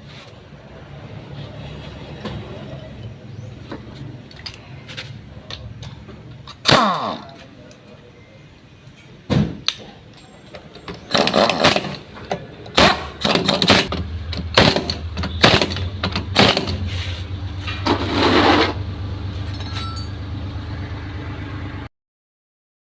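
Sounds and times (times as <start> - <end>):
small engine starting and running: 11.0 - 12.0, 12.8 - 17.2.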